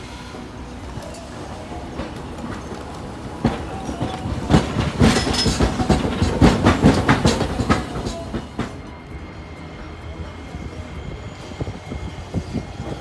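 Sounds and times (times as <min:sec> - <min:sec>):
streetcar wheels clacking over switches: 0:00.8 - 0:08.9.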